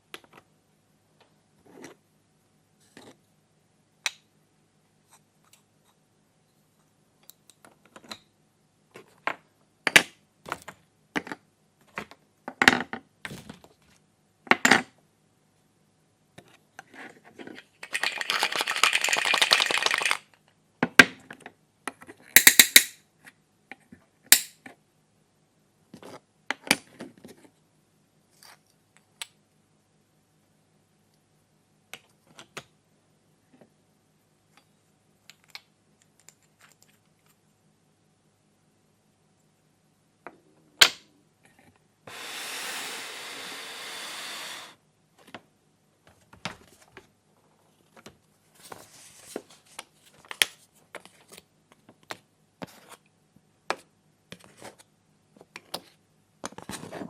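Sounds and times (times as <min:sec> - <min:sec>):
plastic toy pieces clicking: 0:17.8 - 0:20.4, 0:22.4 - 0:23.0.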